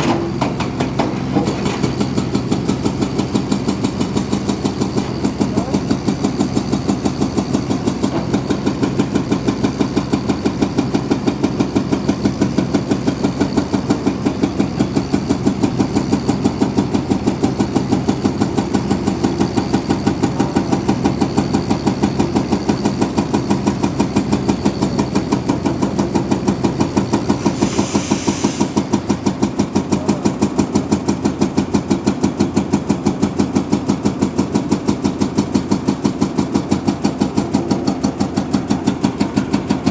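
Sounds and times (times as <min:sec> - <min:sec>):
heavy diesel engine running: 0:00.0 - 0:39.9
short hiss: 0:27.4 - 0:28.8.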